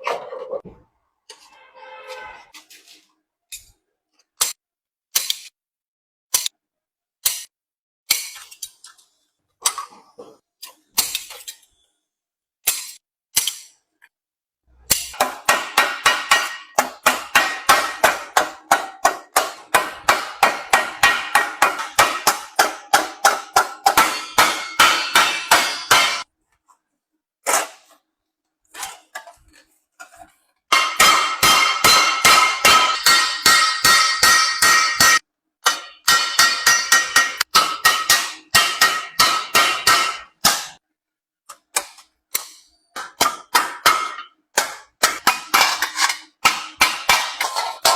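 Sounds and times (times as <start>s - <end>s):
hammer striking sheet metal: 14.9s - 26.3s, 30.7s - 40.8s, 42.4s - 47.9s.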